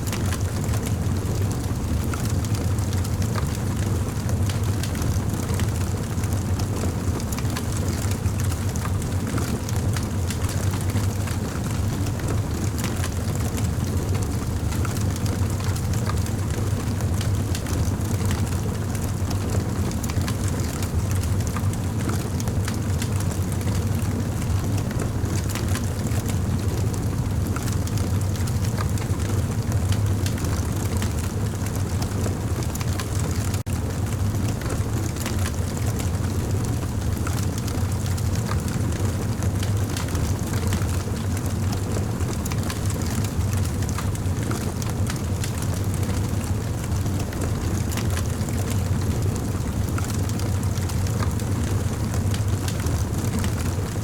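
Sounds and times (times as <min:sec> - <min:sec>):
campfire rumble: 0:00.0 - 0:54.0
fire crackles and pops: 0:00.1 - 0:54.0.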